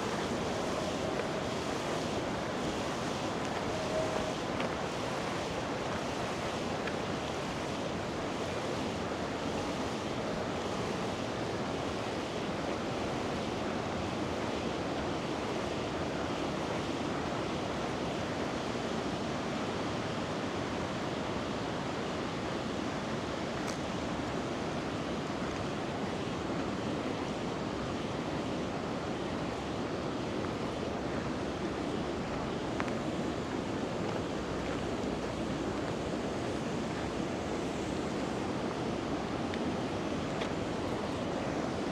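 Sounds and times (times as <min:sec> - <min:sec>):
river water rushing: 0:00.0 - 0:12.4.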